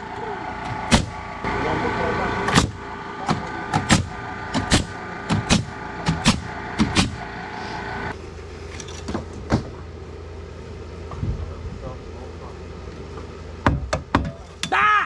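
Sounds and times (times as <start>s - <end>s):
steady motor hum: 0.0s - 14.6s
nails driven into lumber: 2.5s - 7.3s.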